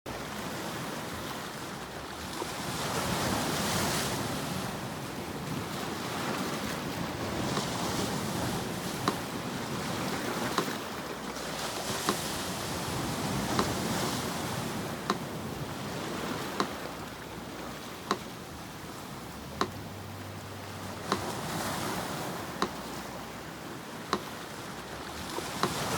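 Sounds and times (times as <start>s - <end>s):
sea surf washing in: 0.1s - 25.9s
metronome ticking: 14.8s - 25.9s.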